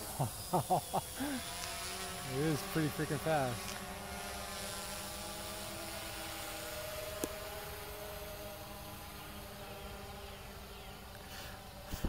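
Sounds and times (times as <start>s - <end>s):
quadcopter propellers whirring: 0.0s - 12.0s.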